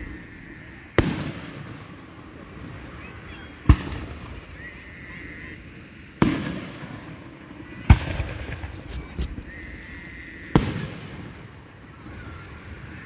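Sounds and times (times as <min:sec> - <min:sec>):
sharp firework cracks: 0:00.0 - 0:01.6
fireworks booming: 0:00.0 - 0:02.8.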